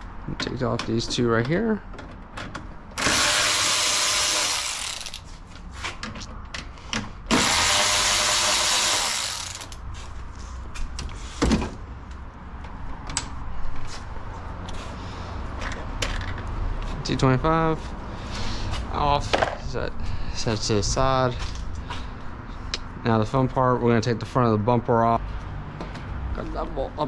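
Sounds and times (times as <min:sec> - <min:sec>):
power drill running: 0:03.0 - 0:05.2, 0:07.3 - 0:09.8.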